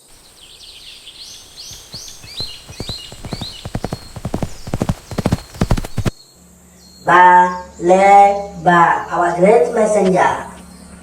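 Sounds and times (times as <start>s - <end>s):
high chirping calls: 0.0s - 6.1s
hoofbeats clip-clop: 0.0s - 6.2s.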